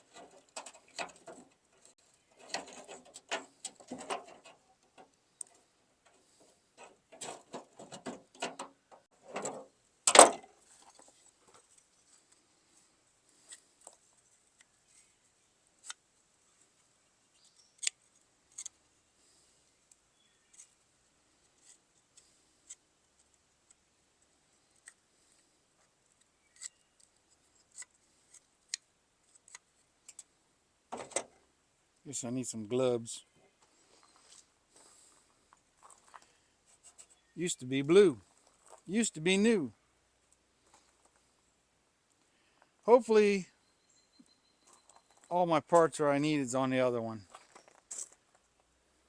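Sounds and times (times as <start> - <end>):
small clicks rattles and scraping: 0.0 - 12.5.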